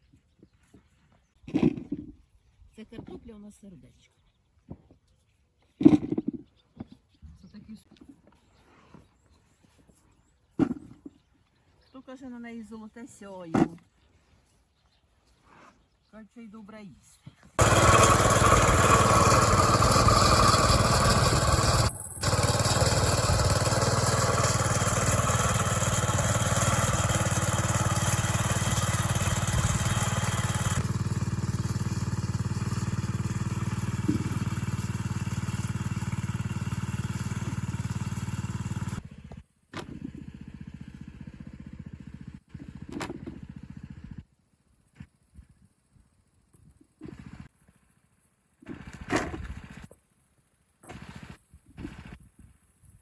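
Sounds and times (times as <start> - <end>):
loud engine running: 17.6 - 44.2.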